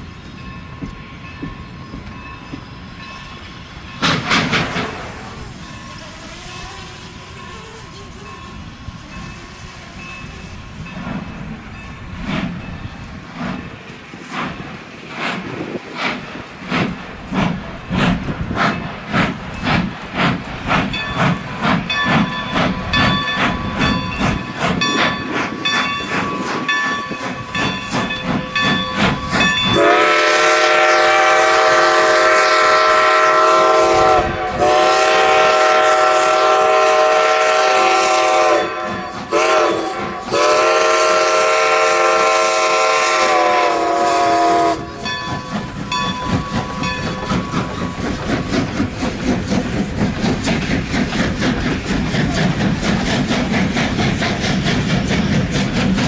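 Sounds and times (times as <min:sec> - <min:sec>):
steam locomotive chime whistle: 0:00.0 - 0:14.0, 0:20.8 - 0:48.8
rhythmic clatter of moving train: 0:00.0 - 0:56.0.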